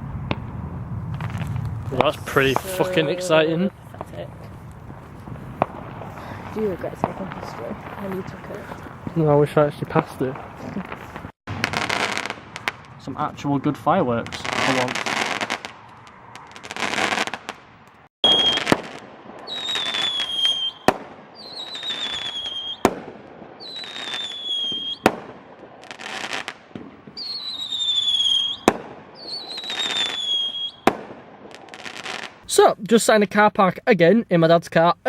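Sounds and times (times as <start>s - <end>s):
firework bangs: 0.0s - 32.5s
firework crackling: 0.0s - 32.7s
firework whistles: 10.6s - 13.0s, 18.2s - 32.5s.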